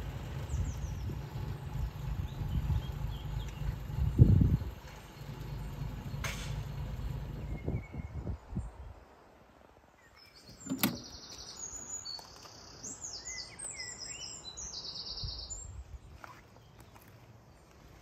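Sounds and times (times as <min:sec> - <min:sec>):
songbird trilling: 0:10.0 - 0:15.7.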